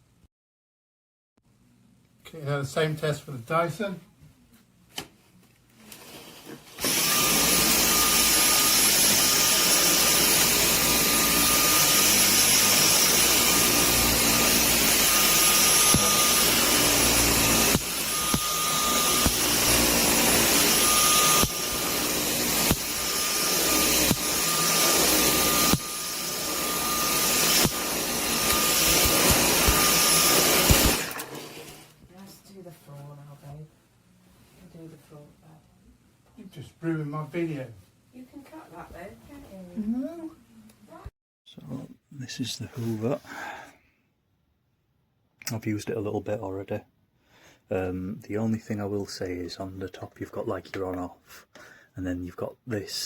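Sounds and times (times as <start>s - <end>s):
stick vacuum whining: 5.9s - 32.0s.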